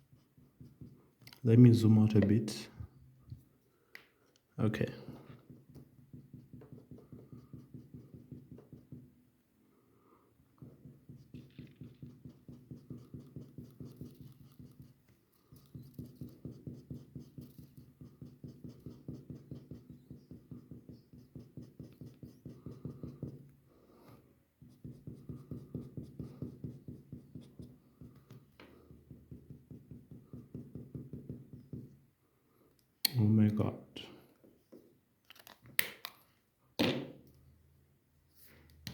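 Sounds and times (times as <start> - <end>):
drawing tool scribbling on paper: 0.0 - 1.0, 5.4 - 9.1, 10.6 - 23.5, 24.6 - 28.3.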